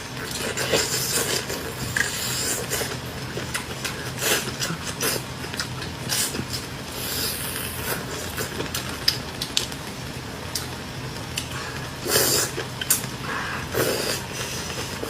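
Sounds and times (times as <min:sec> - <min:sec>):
faint steady hum: 0:00.0 - 0:15.0
chewing and slurping: 0:00.1 - 0:09.8.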